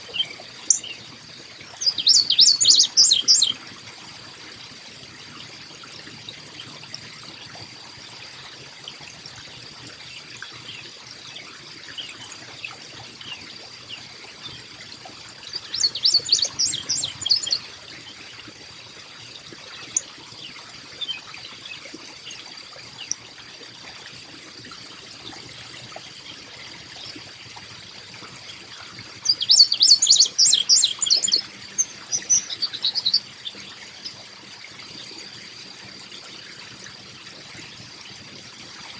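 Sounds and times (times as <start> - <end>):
water trickling: 0.0 - 38.9
bird chirping rapidly: 0.1 - 1.0, 1.8 - 3.5, 15.6 - 17.6, 29.3 - 33.2.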